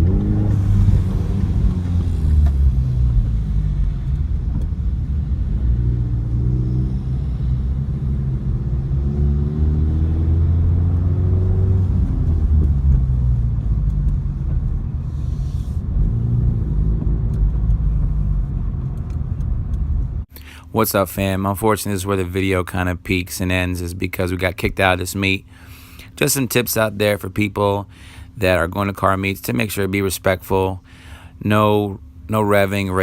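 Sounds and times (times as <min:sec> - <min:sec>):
car engine revving: 0:00.0 - 0:20.2.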